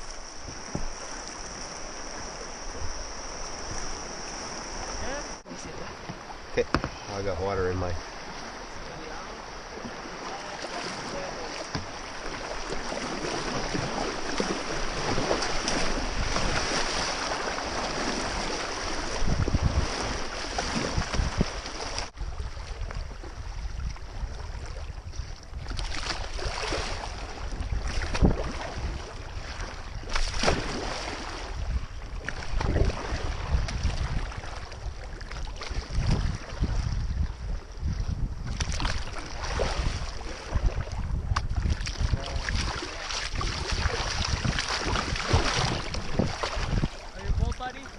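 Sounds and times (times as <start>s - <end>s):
rushing whitewater: 0.0s - 20.8s
paddle splashes: 0.0s - 47.9s
wind buffeting microphone: 6.0s - 47.9s.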